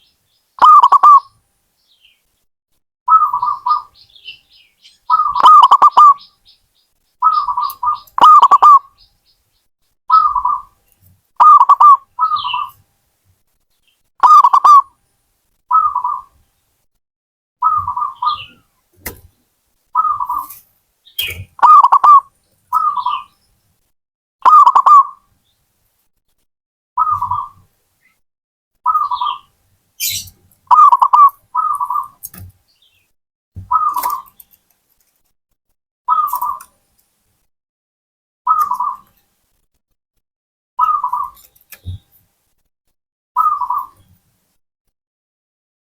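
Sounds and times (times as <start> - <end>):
dove cooing: 0.6 - 1.3, 5.1 - 6.2, 7.2 - 8.9, 11.4 - 12.7, 14.2 - 14.9, 15.7 - 16.3, 17.6 - 18.5, 21.6 - 23.3, 24.5 - 25.1, 30.0 - 32.2, 33.6 - 34.3.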